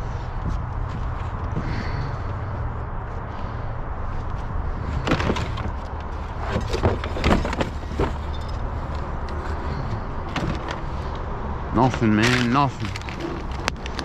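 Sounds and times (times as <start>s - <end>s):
scrap metal clanking in a dumpster: 4.9s - 8.6s.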